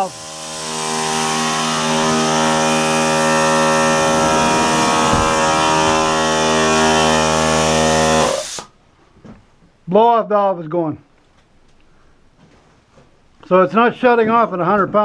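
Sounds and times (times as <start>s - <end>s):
air compressor whining: 0.0s - 8.7s.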